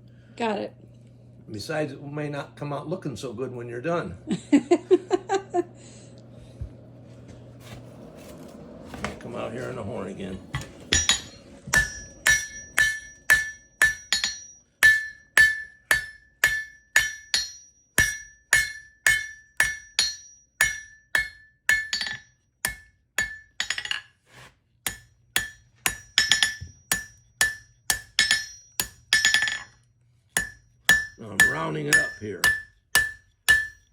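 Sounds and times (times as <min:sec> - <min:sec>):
hammer striking steel on anvil: 0:10.6 - 0:24.1, 0:24.9 - 0:29.8, 0:30.4 - 0:33.9.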